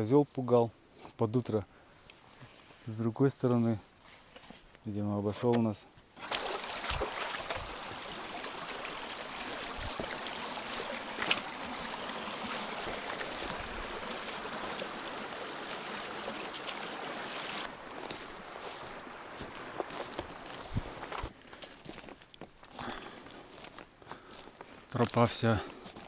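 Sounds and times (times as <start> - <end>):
stream rushing: 6.2 - 21.3
footsteps: 6.2 - 26.0.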